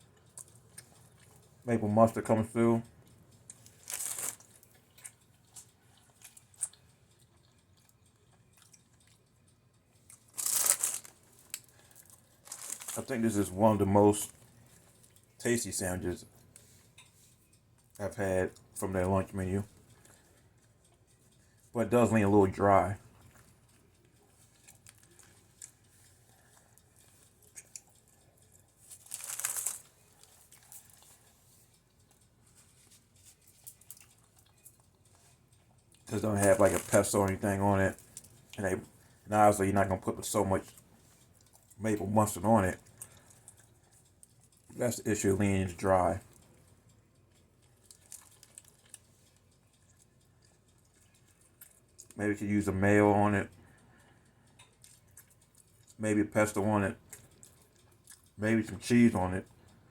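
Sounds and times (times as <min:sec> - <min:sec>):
person chewing: 0:00.0 - 0:01.6, 0:03.0 - 0:13.1, 0:14.3 - 0:15.4, 0:23.0 - 0:37.1, 0:37.9 - 0:39.3, 0:40.7 - 0:41.8, 0:42.8 - 0:44.8, 0:46.2 - 0:52.2, 0:53.6 - 0:56.0, 0:57.0 - 0:58.4
short crunching or rustling: 0:03.6 - 0:04.8, 0:10.2 - 0:13.3, 0:28.9 - 0:31.3
paper wrapping crinkling: 0:03.7 - 0:04.6, 0:10.3 - 0:13.3, 0:28.9 - 0:31.0, 0:36.3 - 0:38.4.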